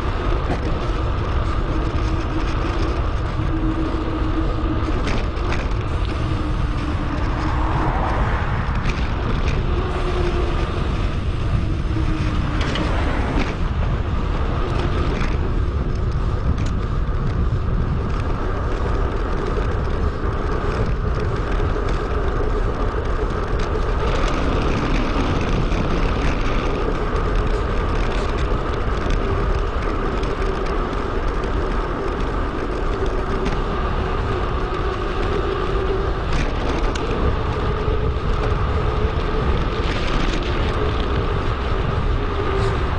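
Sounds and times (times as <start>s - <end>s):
road noise while riding: 0.0s - 42.9s
wind rush on microphone: 0.0s - 42.9s.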